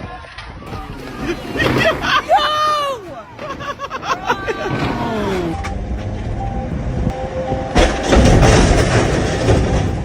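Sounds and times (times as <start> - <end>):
truck rig rattling: 3.0 - 10.0
heavy tow truck rumbling past: 4.6 - 10.0
short beeps: 5.4 - 7.8.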